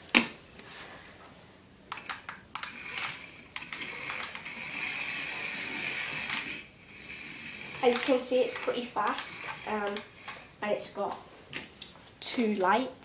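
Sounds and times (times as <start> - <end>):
sharp clicks: 1.9 - 4.5, 7.9 - 10.4
toy car motor whirring: 1.9 - 11.0.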